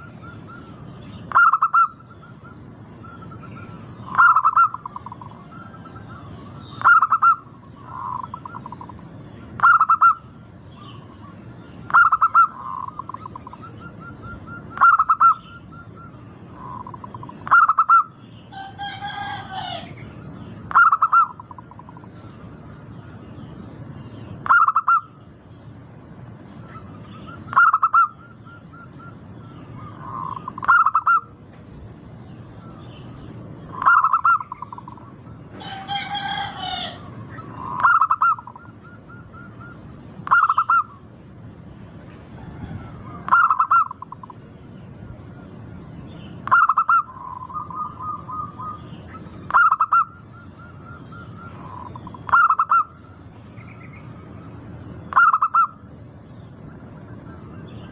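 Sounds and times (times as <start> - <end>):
dove cooing: 0.0 - 9.0, 9.6 - 20.0, 20.7 - 22.2, 24.4 - 25.1, 26.7 - 31.4, 33.7 - 41.0, 42.4 - 44.4, 46.4 - 53.2, 55.1 - 55.8
wavering bird call: 0.0 - 23.3, 24.1 - 25.3, 26.5 - 31.4, 32.3 - 41.1, 42.3 - 44.5, 45.2 - 55.9.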